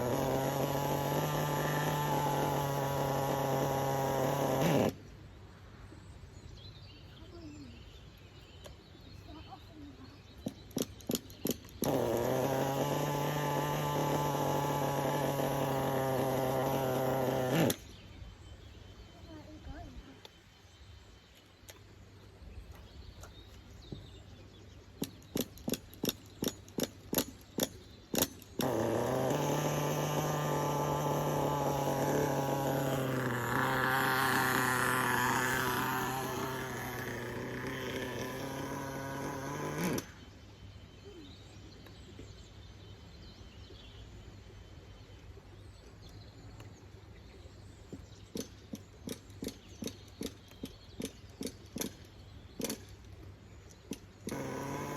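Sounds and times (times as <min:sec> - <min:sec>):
small engine running: 0:00.0 - 0:05.1, 0:10.4 - 0:18.0, 0:25.0 - 0:40.4, 0:48.0 - 0:54.9.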